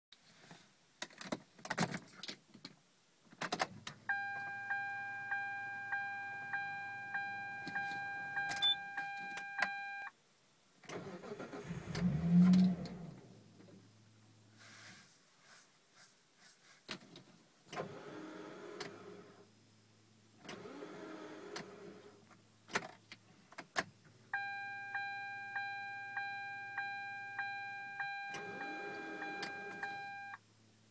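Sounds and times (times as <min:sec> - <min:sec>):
dashboard warning chime pinging: 0:04.1 - 0:10.1, 0:24.4 - 0:30.4.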